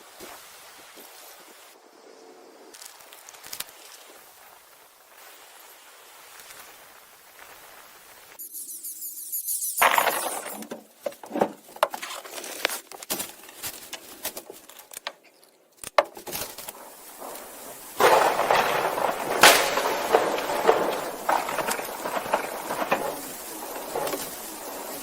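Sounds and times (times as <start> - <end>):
rough scraping noise: 8.6 - 12.9, 16.2 - 25.0
sharp knocks and clatter: 9.8 - 12.3, 15.8 - 25.0.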